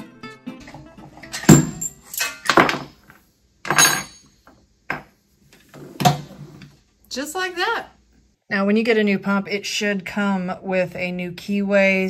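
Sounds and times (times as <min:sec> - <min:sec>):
heavy metal thunk: 0:01.5 - 0:01.9.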